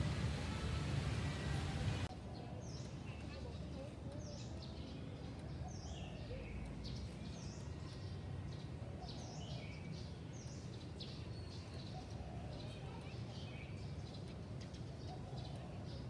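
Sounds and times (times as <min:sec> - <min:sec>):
low background rumble: 0:00.0 - 0:02.1
small birds chirping: 0:01.4 - 0:16.0.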